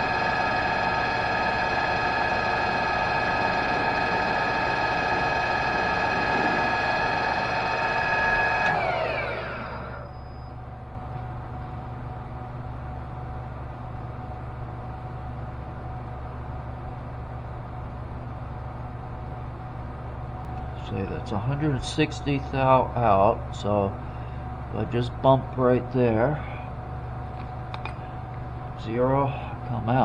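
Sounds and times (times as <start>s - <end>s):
machine spinning down: 0.0s - 10.6s
machine tool whining: 0.0s - 10.6s.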